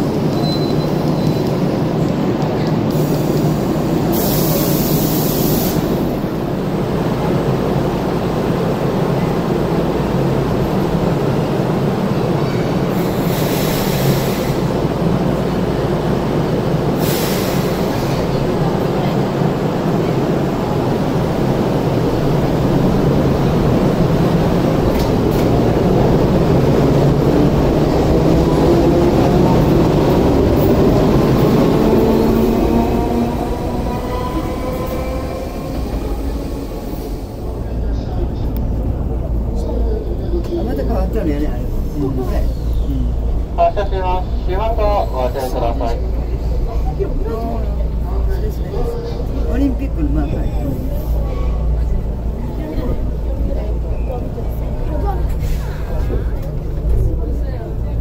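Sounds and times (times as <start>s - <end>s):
train wheels and motors rumbling: 0.0s - 58.0s.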